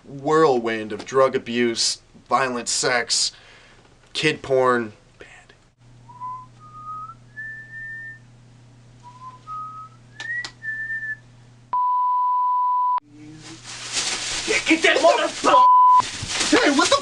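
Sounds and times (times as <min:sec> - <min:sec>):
person whistling a tune: 0:06.1 - 0:08.2, 0:09.0 - 0:11.2
censor bleep: 0:11.7 - 0:13.0, 0:15.6 - 0:16.0.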